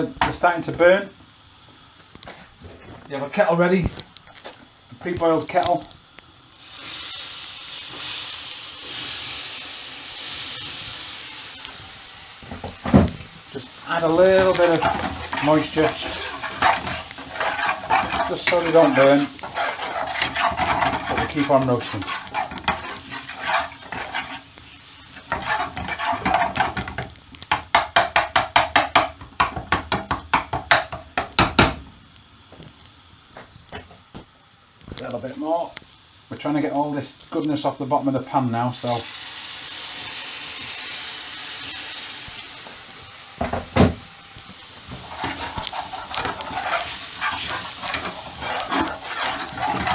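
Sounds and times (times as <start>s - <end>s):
spices sizzling in hot oil: 0.0s - 49.9s
utensil scraping pan: 12.4s - 29.9s, 44.8s - 49.9s.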